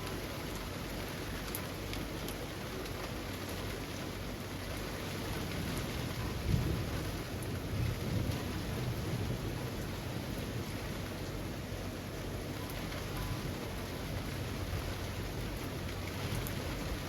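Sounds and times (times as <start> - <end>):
rain falling through trees: 0.0 - 17.0.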